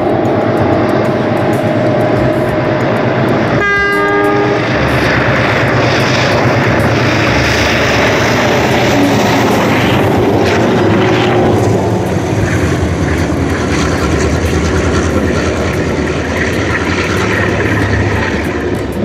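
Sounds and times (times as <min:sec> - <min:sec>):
train passing close by: 0:00.0 - 0:19.0
locomotive horn blast: 0:03.6 - 0:05.6.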